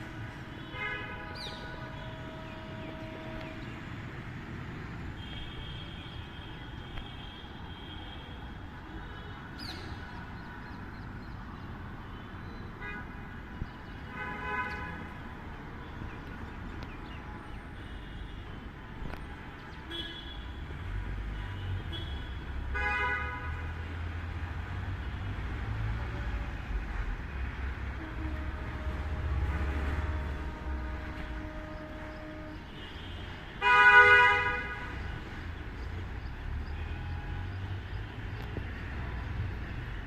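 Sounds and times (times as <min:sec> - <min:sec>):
vehicle horns honking: 0:00.0 - 0:03.9, 0:21.3 - 0:23.6, 0:28.0 - 0:35.0
steady traffic hum: 0:00.0 - 0:40.0.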